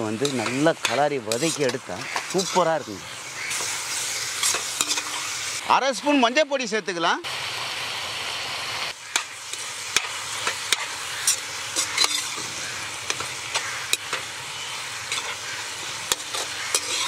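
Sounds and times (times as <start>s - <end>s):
fat sizzling in a pan: 0.0s - 17.0s
metal spatula scraping a pan: 0.2s - 2.8s, 3.4s - 5.4s, 9.1s - 17.0s.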